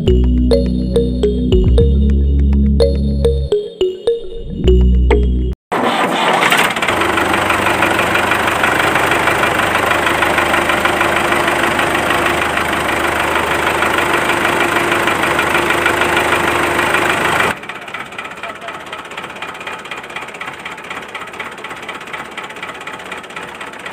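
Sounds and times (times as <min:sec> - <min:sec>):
model diesel engine knocking: 0:06.9 - 0:23.9.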